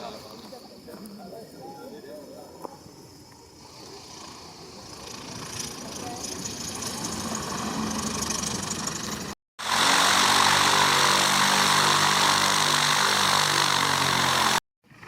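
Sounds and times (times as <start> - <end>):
propeller and air hiss: 3.4 - 14.6
light aircraft engine running: 3.6 - 15.0.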